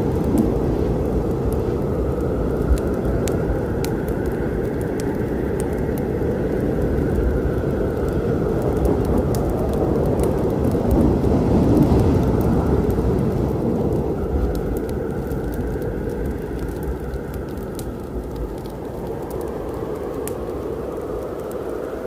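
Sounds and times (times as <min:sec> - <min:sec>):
rain: 0:00.0 - 0:22.0
thunder rumbling: 0:00.0 - 0:22.0
wood fire crackling: 0:00.0 - 0:22.0.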